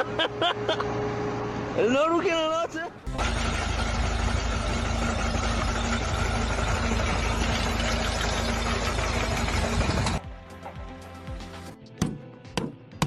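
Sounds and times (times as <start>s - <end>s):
engine running loudly: 3.1s - 10.2s.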